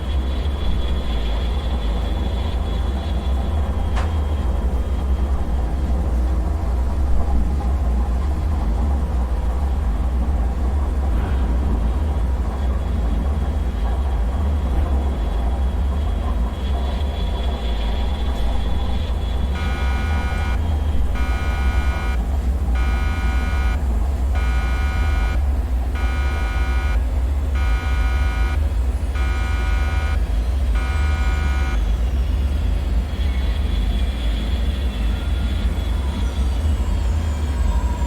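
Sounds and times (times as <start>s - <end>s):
deep rumbling drone: 0.0s - 33.2s
electronic alarm beeps: 19.5s - 22.2s, 22.8s - 25.4s, 26.0s - 31.9s.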